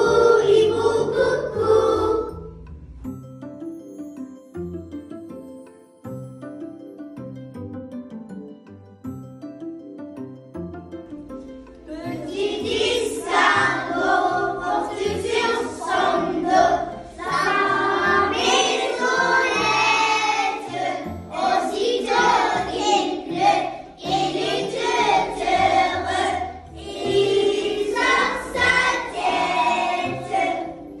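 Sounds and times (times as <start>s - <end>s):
children singing nursery rhyme: 0.0s - 2.6s, 11.8s - 31.0s
light instrumental backing: 0.0s - 31.0s.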